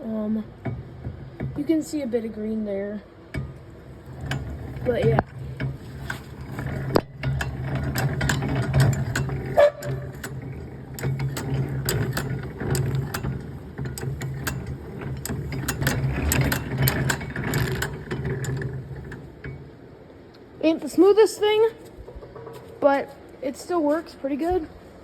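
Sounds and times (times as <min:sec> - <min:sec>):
gears and ratchet clicking: 0:03.3 - 0:19.6
drill press humming: 0:03.3 - 0:19.8.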